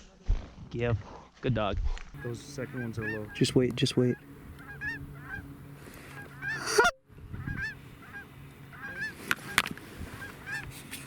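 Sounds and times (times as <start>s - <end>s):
geese honking and clucking: 2.2s - 11.0s.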